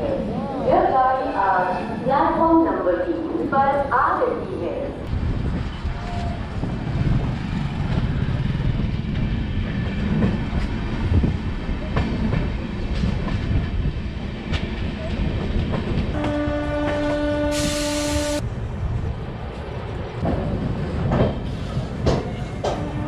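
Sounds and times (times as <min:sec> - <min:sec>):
train wheels rumbling and clicking: 0:05.0 - 0:17.8, 0:19.4 - 0:23.0
train horn blast: 0:16.2 - 0:18.4, 0:22.7 - 0:23.0.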